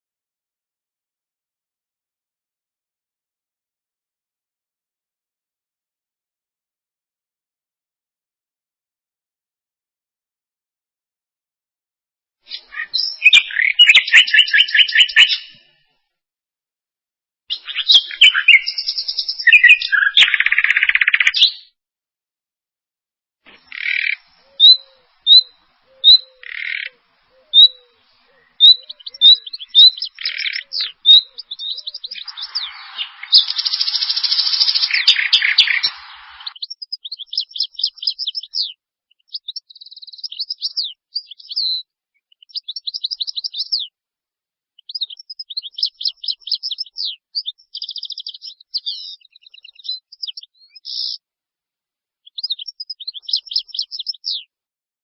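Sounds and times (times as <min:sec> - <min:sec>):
songbirds singing: 0:12.5 - 0:15.8, 0:17.5 - 0:21.8, 0:23.5 - 0:44.0, 0:44.8 - 0:51.2, 0:52.2 - 0:54.5
harsh rasping bird call: 0:23.5 - 0:36.6.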